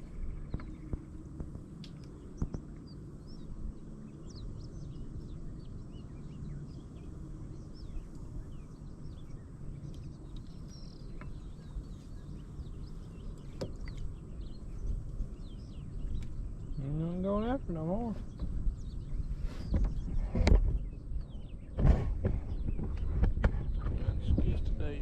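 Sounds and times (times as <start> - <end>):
small birds chirping: 0.0 - 25.0
steady low rumble: 0.0 - 25.0.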